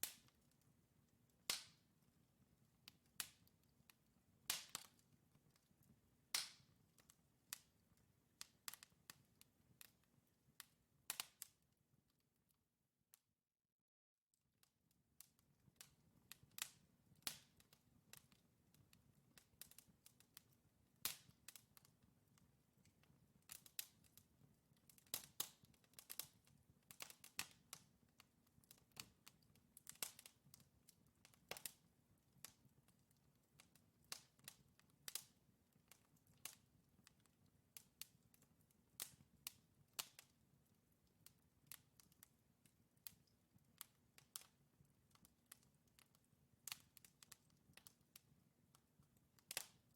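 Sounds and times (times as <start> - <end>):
fire crackling and popping: 0.0 - 11.7, 15.2 - 49.9
low hum of fire: 15.4 - 49.9.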